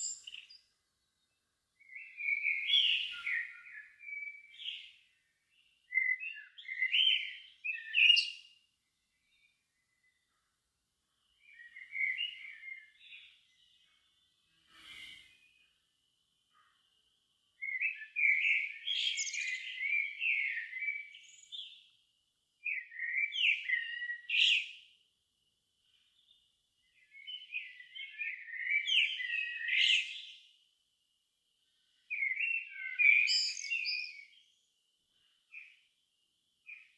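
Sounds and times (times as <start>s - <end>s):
songbird warbling: 0.0s - 0.6s.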